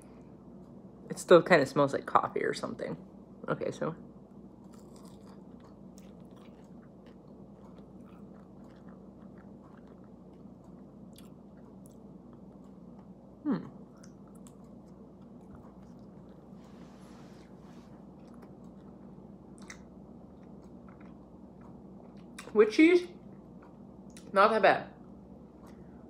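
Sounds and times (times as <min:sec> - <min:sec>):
person chewing food: 0:04.5 - 0:22.5
person humming: 0:13.4 - 0:13.8.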